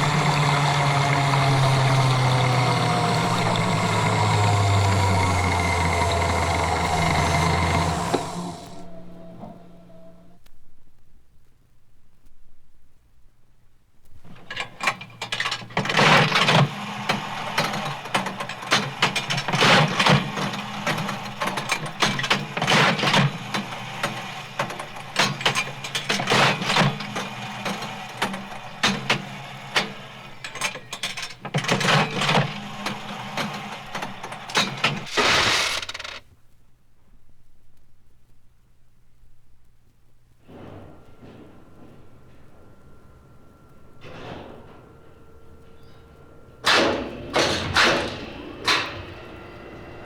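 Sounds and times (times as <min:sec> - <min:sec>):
machine clicking and clattering: 0:00.0 - 0:09.8, 0:14.2 - 0:36.2, 0:40.5 - 0:50.0
low machine hum: 0:00.0 - 0:10.5, 0:40.5 - 0:50.0.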